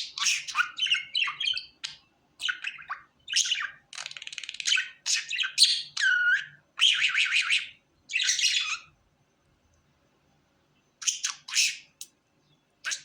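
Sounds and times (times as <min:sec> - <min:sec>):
budgerigar chattering: 0:00.0 - 0:08.9, 0:11.0 - 0:12.1.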